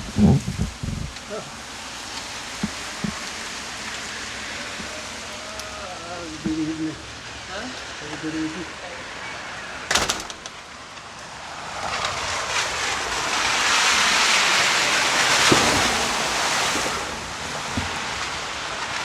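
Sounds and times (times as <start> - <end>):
tyres hissing on wet road: 0.0 - 19.0
sharp clatter: 9.9 - 10.7.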